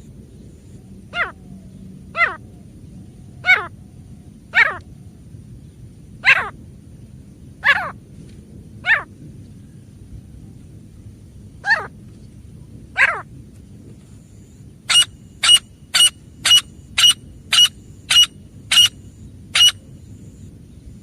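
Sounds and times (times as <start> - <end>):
francolin calling: 14.9 - 20.5.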